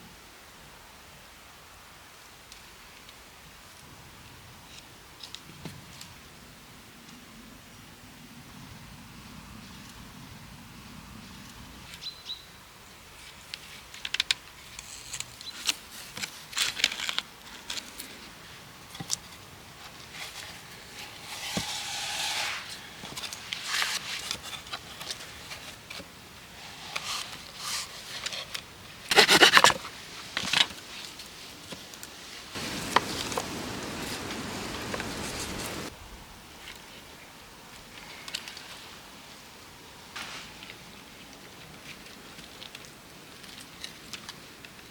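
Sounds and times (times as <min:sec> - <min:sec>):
steady hiss: 0:20.1 - 0:24.6, 0:32.2 - 0:35.9
scraping and rubbing: 0:20.9 - 0:24.8, 0:29.1 - 0:29.8.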